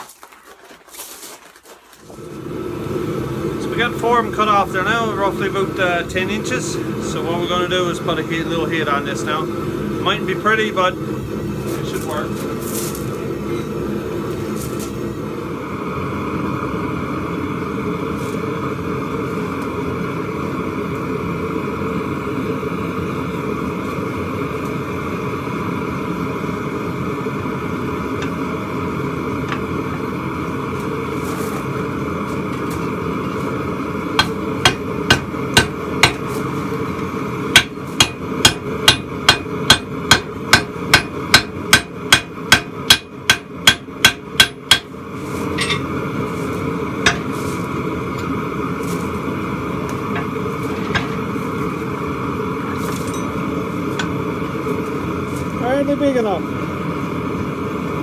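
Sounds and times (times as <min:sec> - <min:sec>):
hammer blows on anvil: 0:34.2 - 0:36.3, 0:37.5 - 0:44.9, 0:45.5 - 0:46.0, 0:47.1 - 0:47.4.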